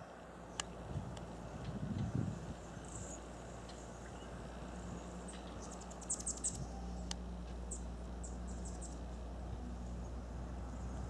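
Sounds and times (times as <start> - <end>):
steady low hum: 0.0 - 11.0
small bird chirping: 5.3 - 7.1, 7.7 - 9.1.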